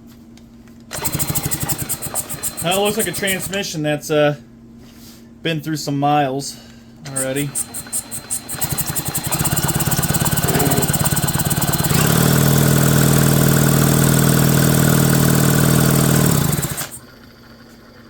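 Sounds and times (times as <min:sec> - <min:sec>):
electric starter cranking engine: 0:00.9 - 0:03.7, 0:07.0 - 0:17.6.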